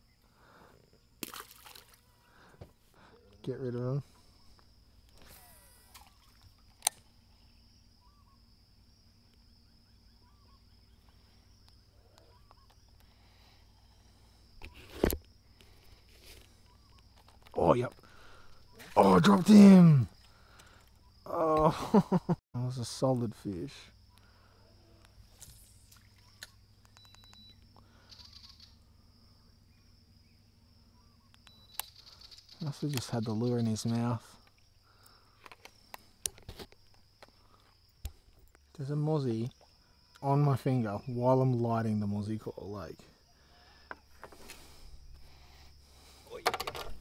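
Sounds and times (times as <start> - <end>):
high insect drone: 0.0 - 47.0
bird chirping calls: 5.4 - 8.5, 9.5 - 13.1, 26.0 - 28.9, 29.8 - 34.7
faint ticks: 11.0 - 13.2, 24.1 - 24.3.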